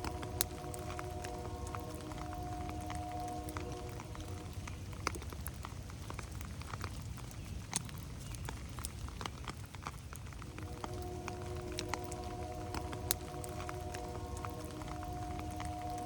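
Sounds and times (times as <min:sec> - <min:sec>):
low steady rumble: 0:00.0 - 0:06.0, 0:10.3 - 0:16.0
rain drips and drops: 0:00.0 - 0:16.0
faint hiss: 0:10.4 - 0:16.0.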